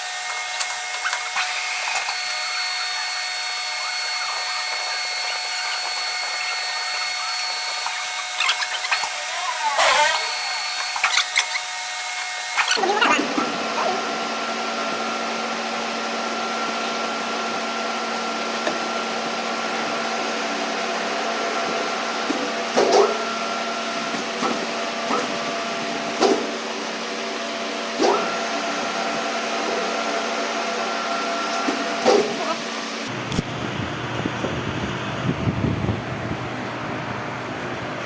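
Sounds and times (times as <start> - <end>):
power tool motor humming: 0.0 - 15.6.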